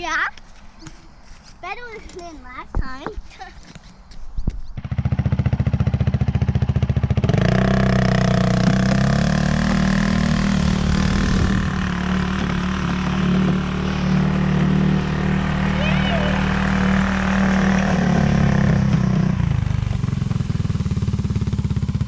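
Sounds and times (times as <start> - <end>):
engine running: 4.8 - 22.0.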